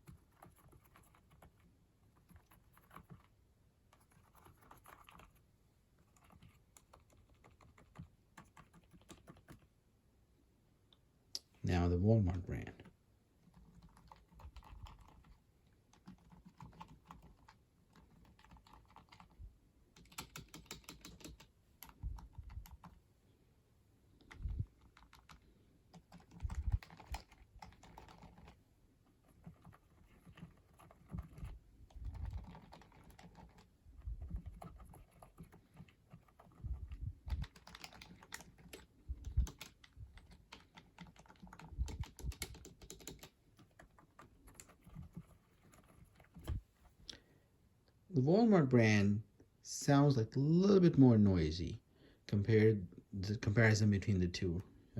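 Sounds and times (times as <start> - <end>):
soft keyboard key clicks: 37.3 - 45.2.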